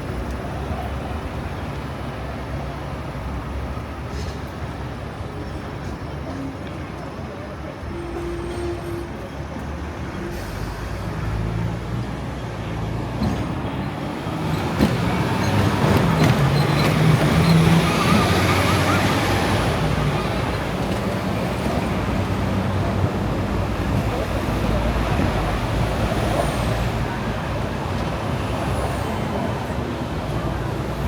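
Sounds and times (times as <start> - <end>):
traffic passing: 9.0 - 31.0.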